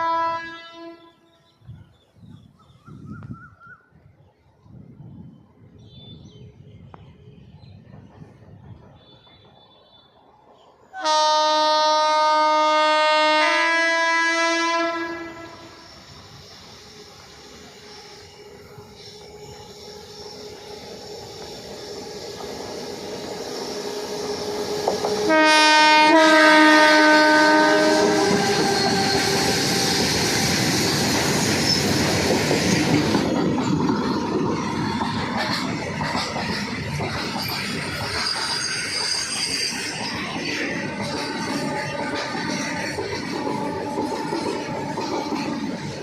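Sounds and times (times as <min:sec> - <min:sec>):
locomotive horn: 0:00.0 - 0:01.4, 0:10.9 - 0:15.9, 0:23.8 - 0:29.8
train wheels on rails: 0:04.2 - 0:46.0.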